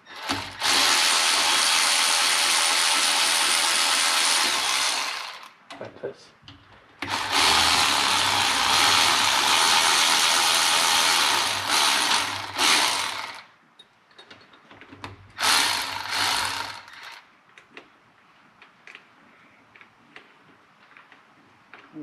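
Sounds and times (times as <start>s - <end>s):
power ratchet running: 0.1s - 5.5s, 7.0s - 13.5s, 15.4s - 17.2s.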